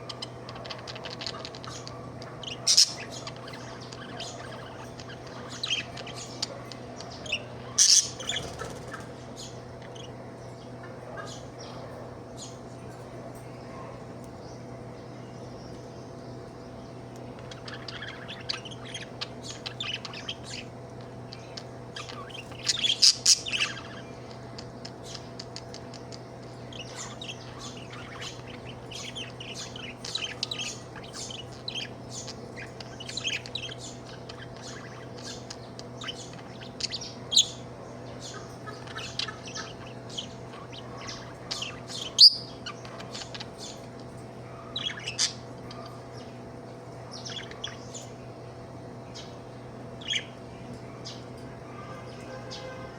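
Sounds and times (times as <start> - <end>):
budgerigar chirping: 0.2 - 6.6, 7.2 - 8.6, 38.2 - 43.8.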